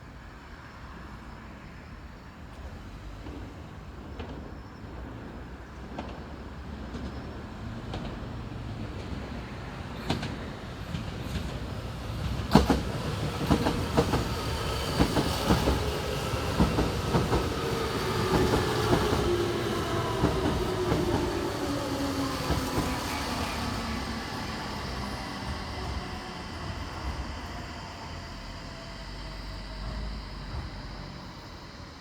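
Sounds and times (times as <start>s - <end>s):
train low rumble: 0.0s - 32.0s
train wheels clicking over rail joints: 5.8s - 28.2s.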